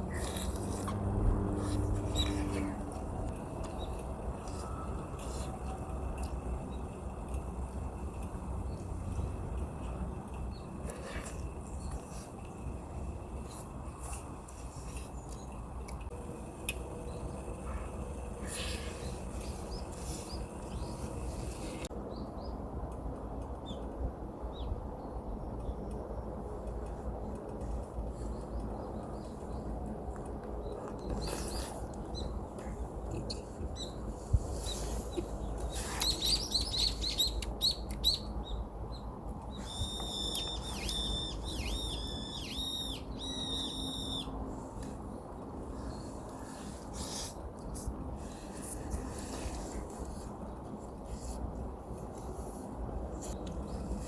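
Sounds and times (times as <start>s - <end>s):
small birds chirping: 0.0s - 3.0s, 30.6s - 44.4s
steady low rumble: 0.0s - 37.1s
bird whistled notes: 39.6s - 44.3s.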